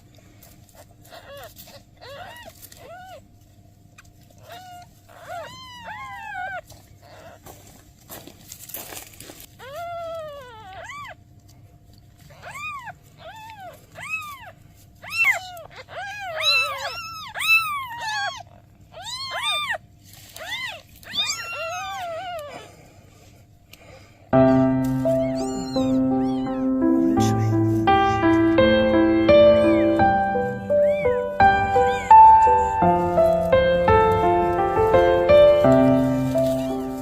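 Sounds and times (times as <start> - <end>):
kittens meowing: 0.8 - 3.3, 4.4 - 7.5, 9.6 - 11.2, 12.2 - 22.8, 24.4 - 37.0
music: 24.4 - 37.0.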